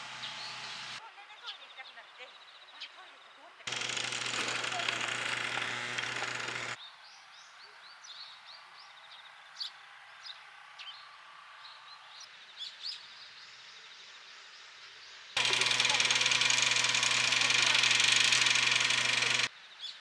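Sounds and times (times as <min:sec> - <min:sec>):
quiet rural background: 0:00.0 - 0:20.0
small birds chirping: 0:00.0 - 0:20.0
loud steady humming noise: 0:03.7 - 0:06.8, 0:15.4 - 0:19.5.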